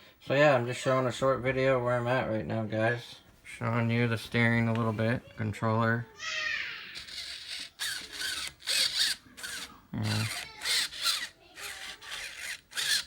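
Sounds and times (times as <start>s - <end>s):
steering servo whining: 7.0s - 13.0s.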